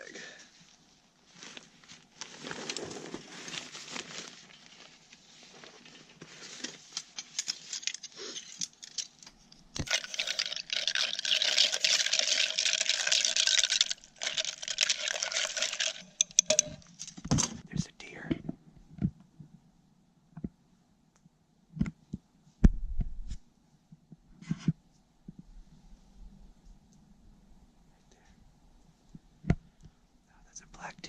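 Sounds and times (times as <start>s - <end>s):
plastic packaging crinkling: 6.4s - 17.2s.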